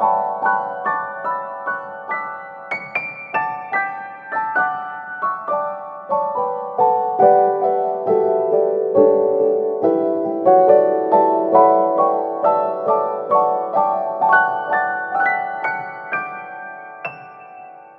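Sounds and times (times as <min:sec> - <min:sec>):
gentle solo piano melody: 0:00.0 - 0:17.9.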